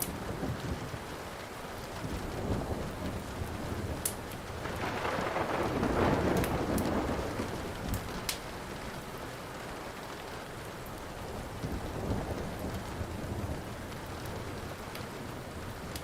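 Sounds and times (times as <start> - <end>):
steady rain: 0.0 - 16.0
thunder rolling: 2.0 - 8.9
sharp crackles: 3.1 - 8.6.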